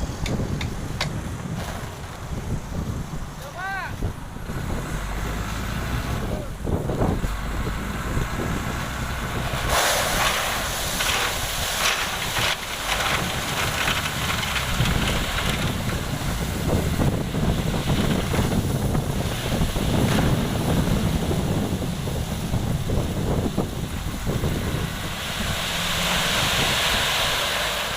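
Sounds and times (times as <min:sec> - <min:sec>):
heavy machinery engine: 0:04.0 - 0:27.9
rushing hiss: 0:09.5 - 0:14.7, 0:24.2 - 0:27.9.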